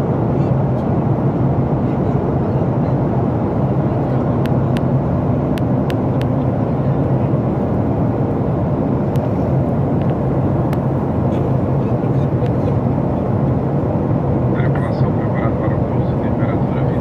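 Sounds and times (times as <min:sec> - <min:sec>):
airliner cabin engine roar: 0:00.0 - 0:17.0.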